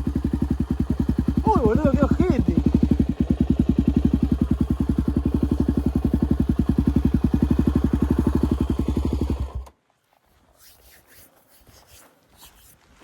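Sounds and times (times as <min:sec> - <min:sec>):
motorcycle engine idling: 0:00.0 - 0:09.7.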